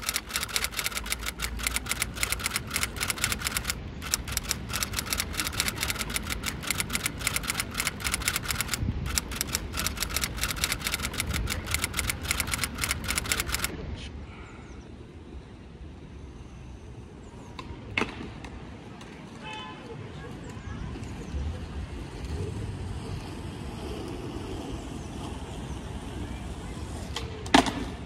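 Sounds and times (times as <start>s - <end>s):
typing clicks: 0.0s - 13.7s.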